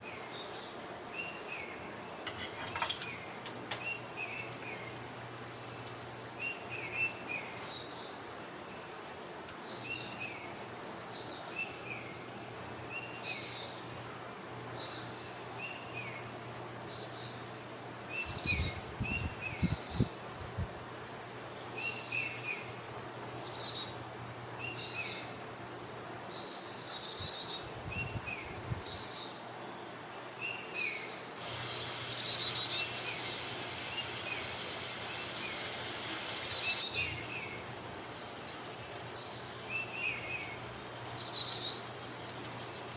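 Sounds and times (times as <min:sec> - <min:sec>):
birds chirping: 0:00.0 - 0:14.1, 0:30.2 - 0:42.9
faint steady hum: 0:00.0 - 0:42.9.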